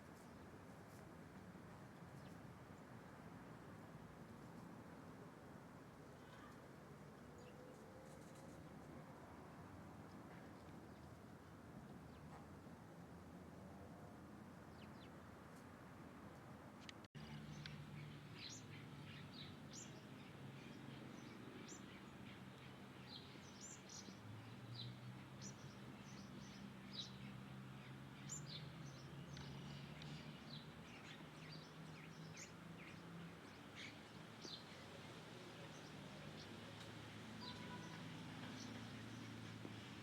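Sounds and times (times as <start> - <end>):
small birds chirping: 16.8 - 39.9.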